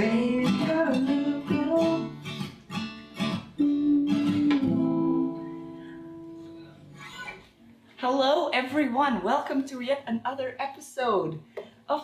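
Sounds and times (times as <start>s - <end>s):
acoustic guitar strumming: 0.0s - 7.5s.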